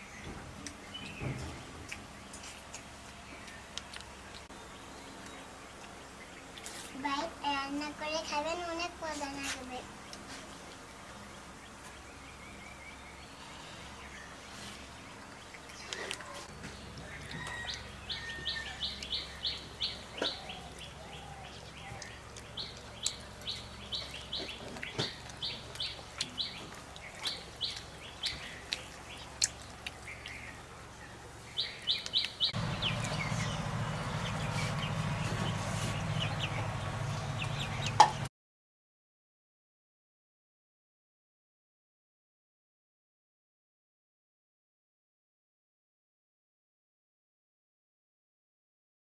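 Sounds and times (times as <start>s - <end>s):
steady low hum: 0.0s - 38.3s
small bird chirping: 11.6s - 38.3s.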